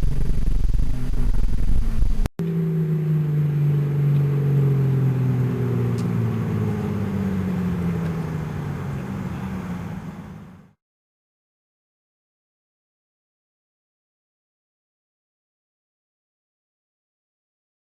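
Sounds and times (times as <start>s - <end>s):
car engine running: 0.0s - 10.8s.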